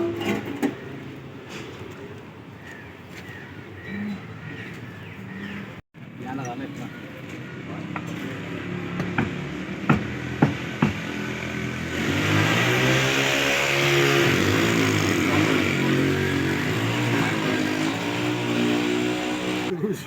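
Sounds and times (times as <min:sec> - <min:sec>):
sharp knocks: 0:09.0 - 0:11.2.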